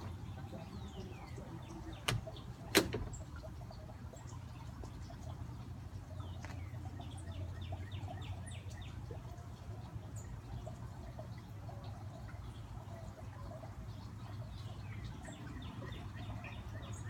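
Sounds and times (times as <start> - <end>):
garden fountain: 0.0 - 17.0
songbirds chirping and calling: 0.0 - 17.0
sharp clicks: 2.0 - 3.1.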